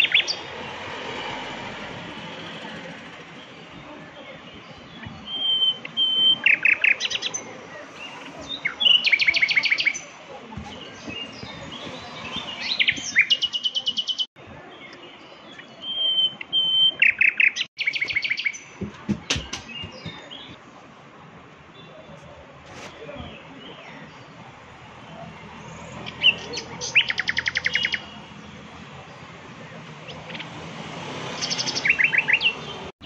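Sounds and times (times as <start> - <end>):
songbird trilling: 25.9 - 28.2.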